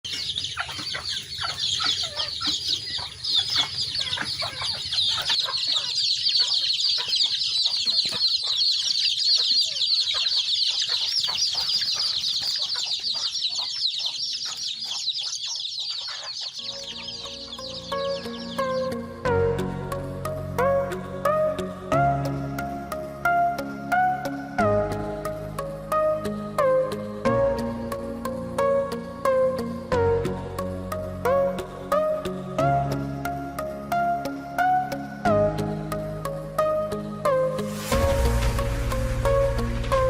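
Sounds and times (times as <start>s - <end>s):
chicks peeping: 0.0s - 24.6s
music: 16.6s - 40.0s.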